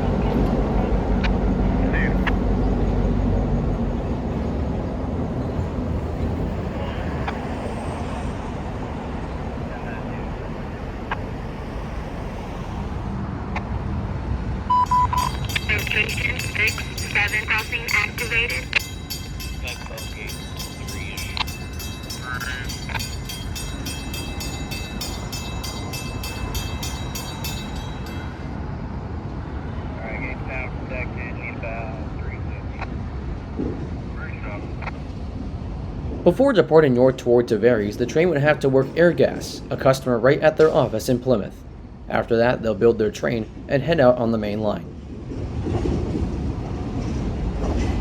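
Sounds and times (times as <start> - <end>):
railroad crossing bell ringing: 2.0 - 13.1, 14.7 - 29.5, 37.1 - 41.6.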